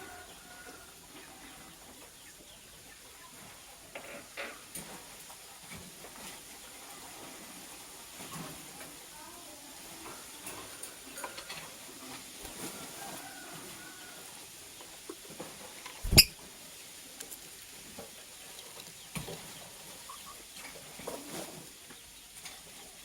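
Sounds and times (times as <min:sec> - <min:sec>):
bird scratching and rustling: 0:10.5 - 0:16.4
faint bird chirps: 0:16.0 - 0:16.4.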